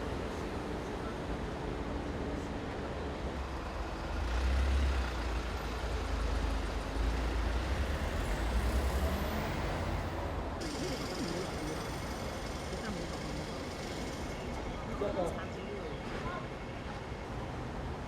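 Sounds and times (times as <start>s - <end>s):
heavy vehicles passing: 0.0s - 15.3s.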